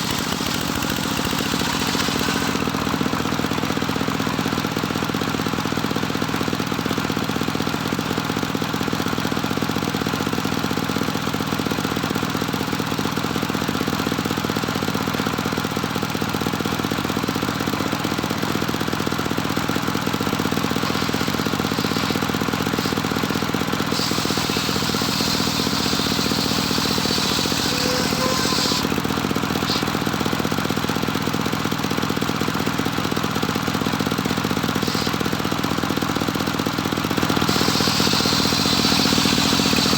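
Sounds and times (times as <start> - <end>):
saw blade cutting board: 0.0 - 2.7, 20.6 - 30.1, 34.8 - 35.4, 37.3 - 39.9
sawmill engine running: 0.0 - 39.9.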